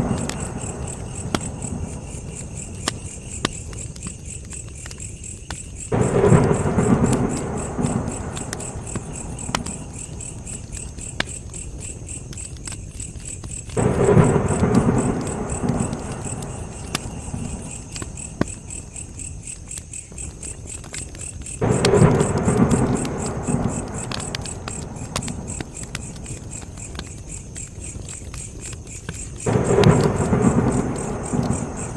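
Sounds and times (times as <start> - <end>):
campfire crackling and popping: 0.0 - 31.9
crickets chirping: 0.0 - 31.9
low rumbling: 5.9 - 11.2, 13.8 - 18.7, 29.5 - 31.9.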